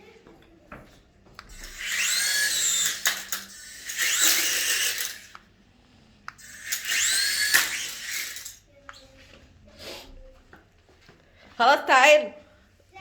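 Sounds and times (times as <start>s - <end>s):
toy helicopter motor whining: 1.4s - 5.4s, 6.3s - 8.6s.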